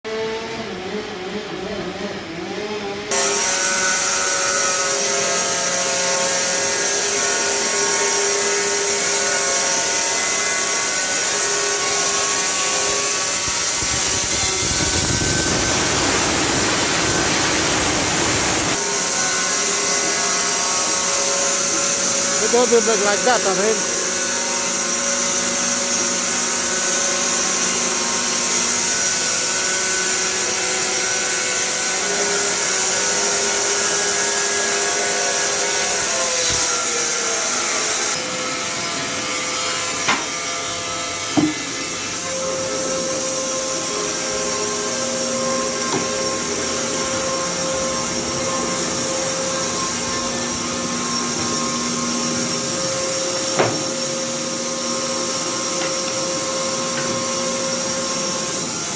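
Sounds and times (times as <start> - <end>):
sawmill running and sawing: 3.0 - 58.9
high hiss: 13.3 - 18.8.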